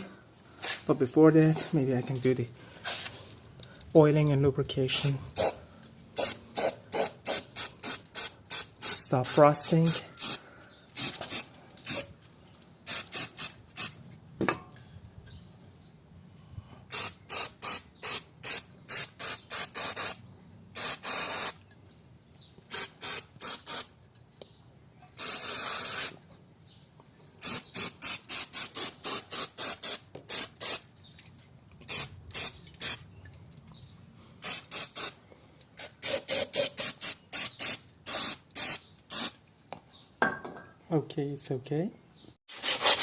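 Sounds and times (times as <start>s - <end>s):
aerosol spray hissing: 6.2s - 10.4s, 25.2s - 26.2s, 34.4s - 35.2s, 35.8s - 39.3s.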